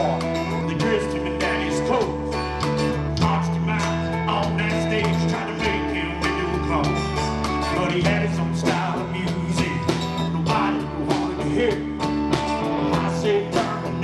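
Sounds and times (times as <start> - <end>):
bass: 0.0 - 14.0
drums with steady beat: 0.0 - 14.0
electric guitar lead: 0.0 - 14.0.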